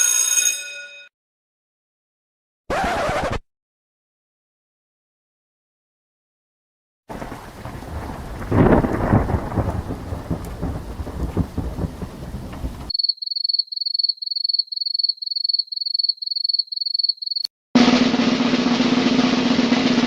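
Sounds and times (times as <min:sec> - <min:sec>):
rain: 0:07.1 - 0:12.9
thunder rumbling: 0:07.1 - 0:12.9.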